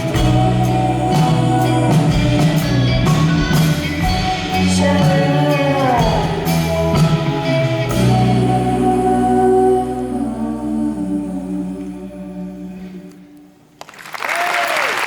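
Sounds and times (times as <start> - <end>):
live band music: 0.0 - 10.6
person singing: 0.0 - 13.4.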